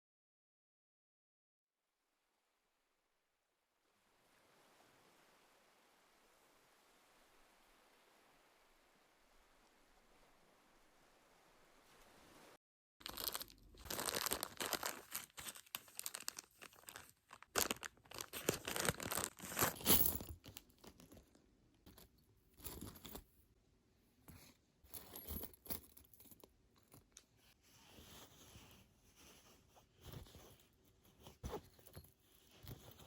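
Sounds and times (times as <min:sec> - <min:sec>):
packaging crinkling and tearing: 0:13.0 - 0:19.8.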